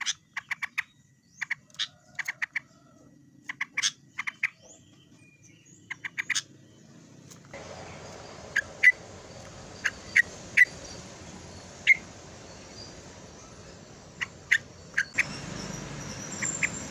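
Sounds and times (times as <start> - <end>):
bird calling in sharp notes: 7.6 - 16.9
steady background hiss: 7.6 - 16.9.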